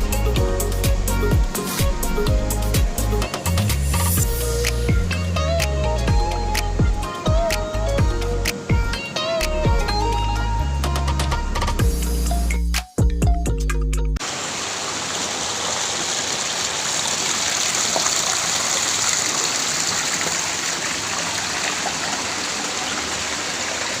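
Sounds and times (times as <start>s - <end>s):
background music: 0.0s - 14.2s
flowing water rushing: 14.2s - 24.0s.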